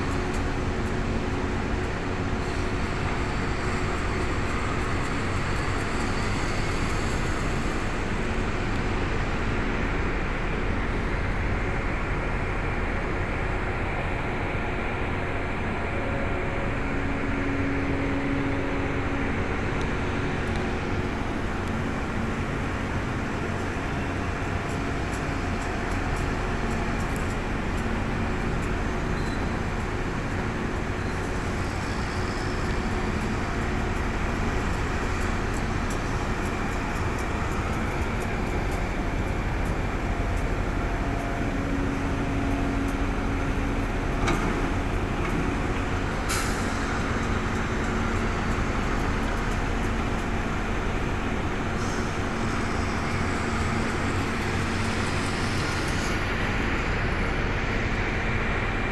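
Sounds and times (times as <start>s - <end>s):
heavy diesel engine running: 0.0s - 58.9s.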